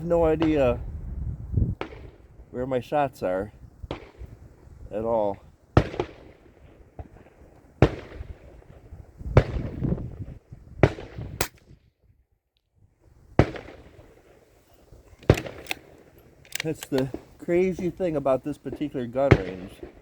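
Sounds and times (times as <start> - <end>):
wind rumble: 0.0 - 20.0
rifle shots: 5.8 - 8.8, 10.8 - 11.7, 13.4 - 14.3, 15.0 - 17.9, 18.7 - 20.0.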